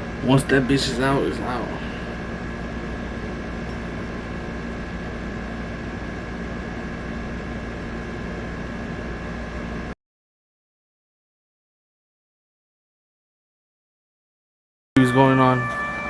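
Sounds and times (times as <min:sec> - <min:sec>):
background hum and hiss: 0:00.0 - 0:10.0
constant high whine: 0:00.0 - 0:10.0, 0:15.0 - 0:16.0.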